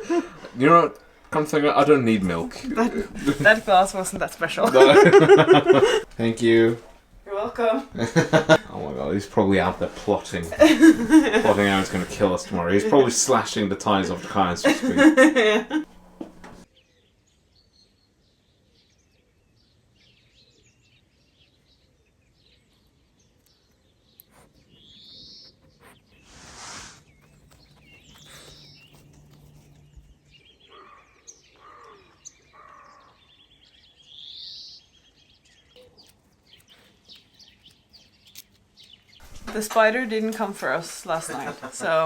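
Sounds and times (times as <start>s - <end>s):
birds chirping and whistling: 24.3s - 39.4s
harsh bird calls: 24.3s - 42.0s
brief rush of noise: 26.2s - 27.0s.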